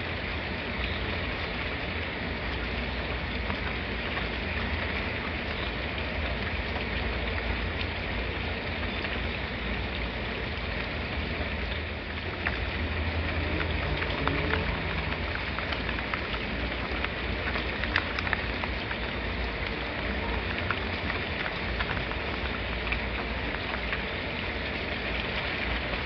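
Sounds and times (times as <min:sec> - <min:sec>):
rain drop ticks: 0:00.0 - 0:26.0
steady rain hiss: 0:00.0 - 0:26.0
low rumble: 0:12.4 - 0:17.2.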